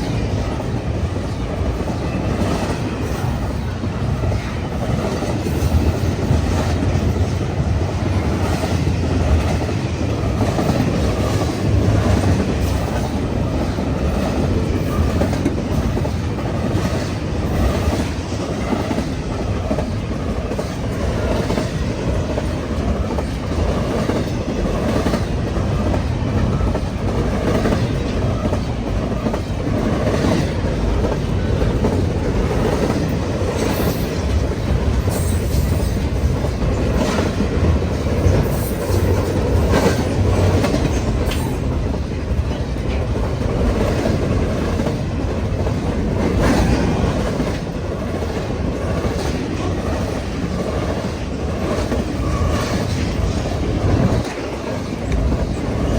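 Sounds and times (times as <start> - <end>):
freight train rumbling past: 0.0 - 55.9.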